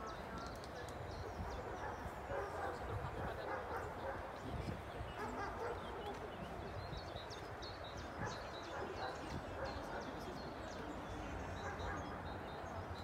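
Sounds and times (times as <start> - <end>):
wind rumble on microphone: 0.0 - 10.5
faint voices: 0.0 - 13.0
small birds chirping: 0.0 - 13.0.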